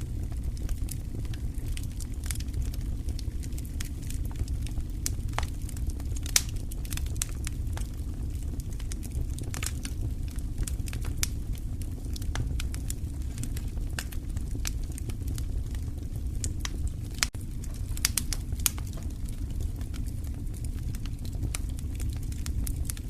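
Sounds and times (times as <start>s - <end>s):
low steady rumble: 0.0s - 23.0s
wood fire crackling and popping: 0.0s - 23.0s.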